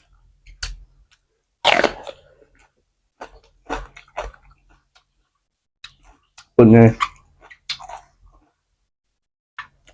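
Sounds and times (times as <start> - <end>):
person biting and chewing food: 0.0 - 5.2, 5.8 - 8.6.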